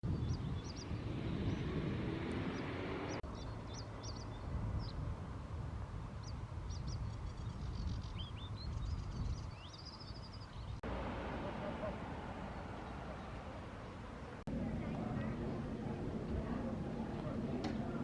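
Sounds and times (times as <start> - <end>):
small birds chirping: 0.0 - 5.1, 6.1 - 14.4
low outdoor rumble: 10.6 - 18.0.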